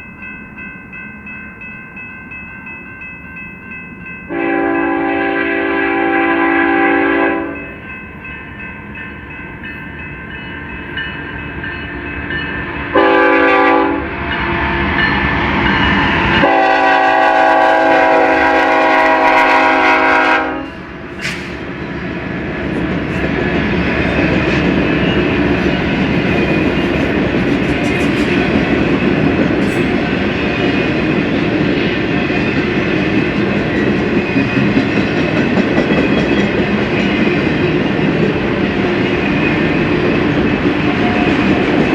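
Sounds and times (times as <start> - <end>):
train rumbling past: 0.0 - 41.9
locomotive air horn blasts: 4.3 - 7.6, 12.9 - 14.0, 16.4 - 20.8.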